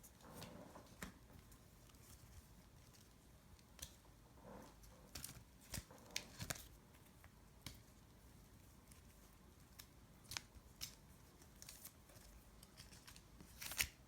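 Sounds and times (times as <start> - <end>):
cards clicking and rustling: 5.1 - 7.9, 8.8 - 14.0.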